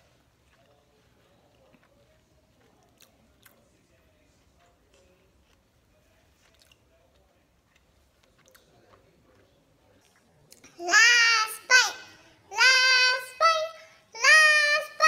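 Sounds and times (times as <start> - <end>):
close-up chewing: 0.0 - 10.8
low background hum: 0.0 - 15.0.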